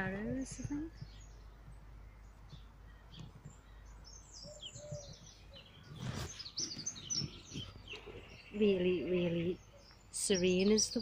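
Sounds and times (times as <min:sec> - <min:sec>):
small birds chirping: 0:00.0 - 0:11.0
soft walking steps: 0:00.0 - 0:11.0
brief rustle: 0:05.9 - 0:08.1.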